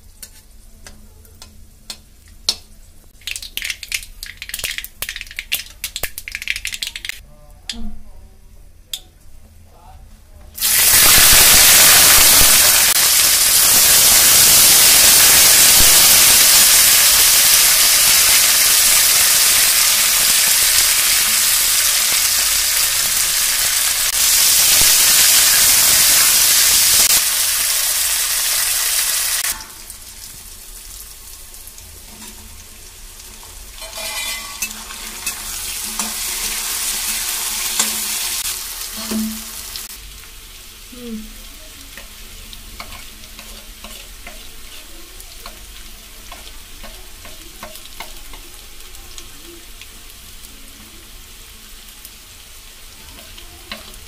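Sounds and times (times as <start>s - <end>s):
beans sizzling in hot oil: 0.0s - 7.2s, 10.6s - 54.0s
ladle stirring vegetables: 41.7s - 48.6s, 52.9s - 54.0s.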